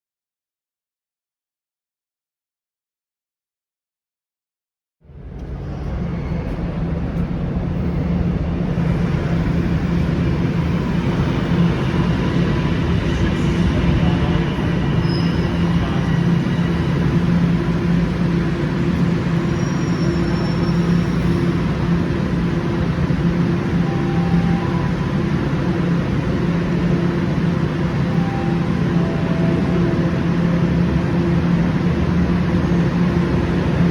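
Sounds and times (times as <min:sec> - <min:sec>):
subway train rumbling: 0:05.0 - 0:33.9.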